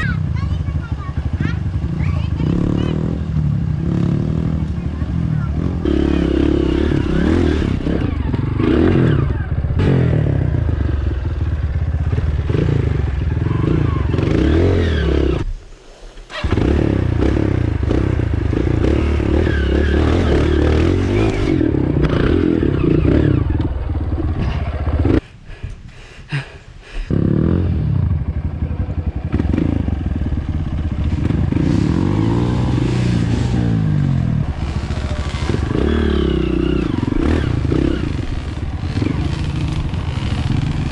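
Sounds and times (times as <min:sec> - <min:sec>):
dirt bike engine under load: 0:34.4 - 0:40.9.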